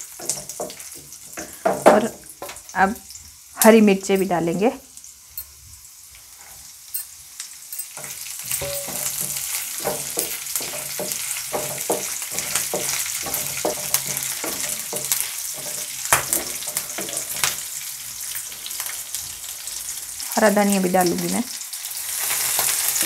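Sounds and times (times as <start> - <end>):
food sizzling in hot oil: 0.0 - 23.0
wooden spatula scraping a pan: 8.0 - 17.8.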